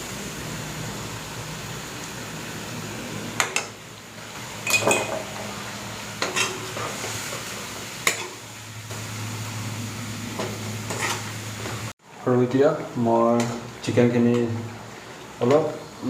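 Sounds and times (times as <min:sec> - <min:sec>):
metal spoon clinking on pan: 0:04.6 - 0:05.3.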